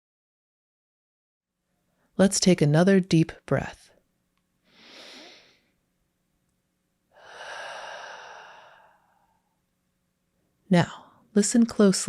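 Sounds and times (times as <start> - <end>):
person breathing in: 4.7 - 5.7, 7.1 - 9.5
person exhaling: 4.7 - 5.7, 7.1 - 9.5.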